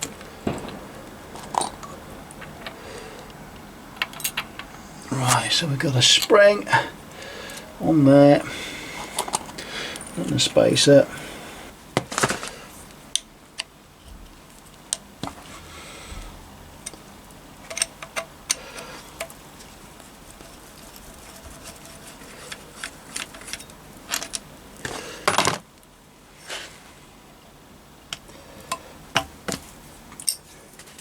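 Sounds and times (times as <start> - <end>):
metal on metal rattle: 0.0 - 2.8
metal parts clicking and clinking: 0.0 - 3.3, 4.0 - 6.4, 17.6 - 18.6, 20.8 - 24.5, 30.2 - 30.6.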